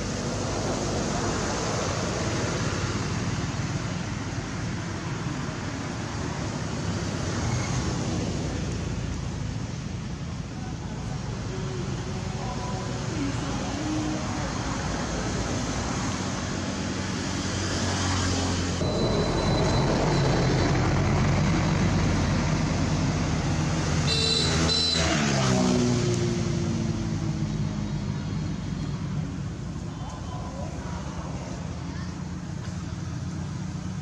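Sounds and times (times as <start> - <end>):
vehicle engine passing by: 12.9 - 29.6.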